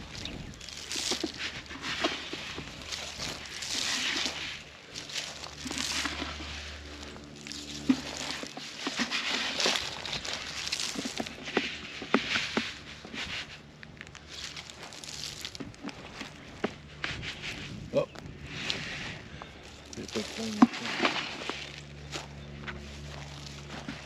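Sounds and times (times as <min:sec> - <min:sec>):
small clicks and crackles: 0:00.0 - 0:17.6
footsteps swishing through grass: 0:00.0 - 0:24.0.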